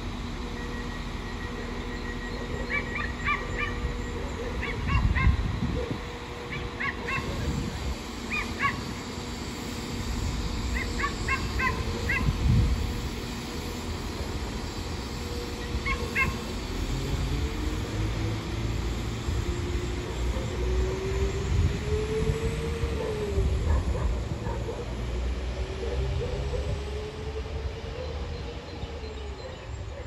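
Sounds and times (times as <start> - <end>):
diesel train engine pulling away: 0.0 - 30.0
short high yelping calls: 2.6 - 3.9, 6.5 - 7.4, 8.3 - 8.9, 10.8 - 12.3, 15.8 - 16.4.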